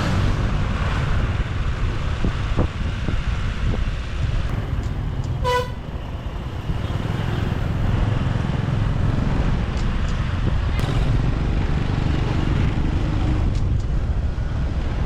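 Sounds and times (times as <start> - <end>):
motorbike engine rumble: 0.0 - 14.8
horn toot: 4.5 - 7.9.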